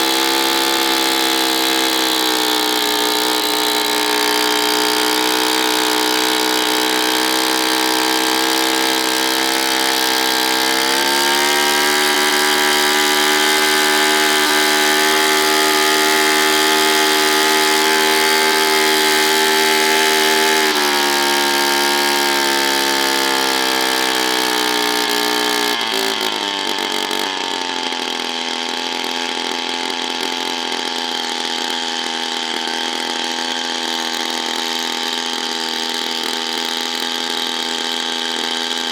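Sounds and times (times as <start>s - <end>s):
motor running loudly: 0.0s - 38.9s.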